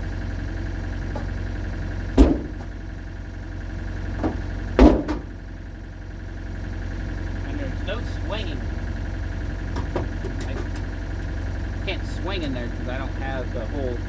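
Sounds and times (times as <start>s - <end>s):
engine idling: 0.0s - 14.0s
sharp loud knocks: 2.2s - 2.7s, 4.2s - 5.3s.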